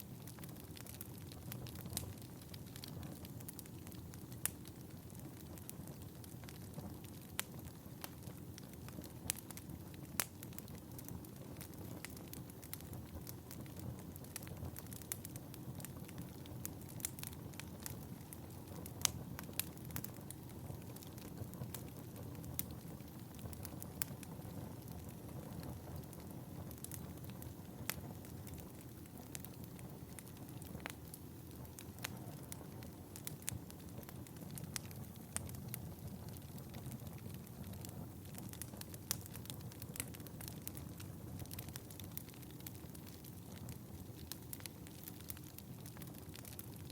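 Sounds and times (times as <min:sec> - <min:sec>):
fire crackling and popping: 0:00.0 - 0:46.9
fire flames rumbling: 0:00.0 - 0:46.9.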